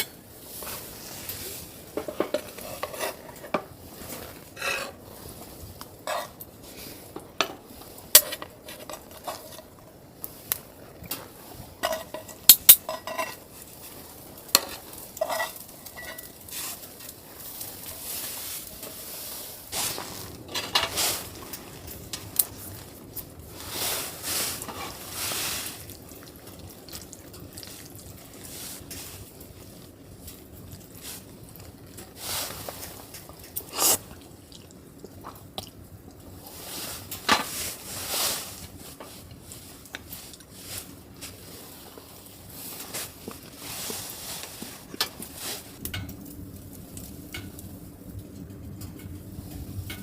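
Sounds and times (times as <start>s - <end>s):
utensil scraping and stirring: 0.0s - 34.1s, 36.5s - 46.1s
metal utensils clinking on cookware: 1.9s - 5.0s, 6.0s - 6.4s, 7.4s - 9.7s, 11.1s - 13.5s, 14.5s - 17.2s.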